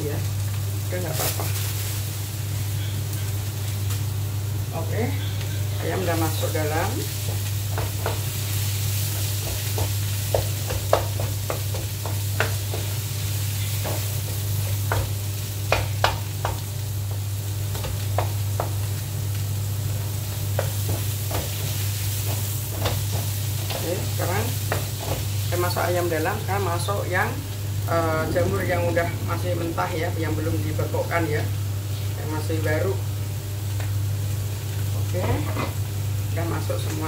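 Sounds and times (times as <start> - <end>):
chicken sizzling in a wok: 0.0 - 37.0
spatula knocking against pan: 7.2 - 8.3, 9.2 - 13.0, 14.8 - 16.6.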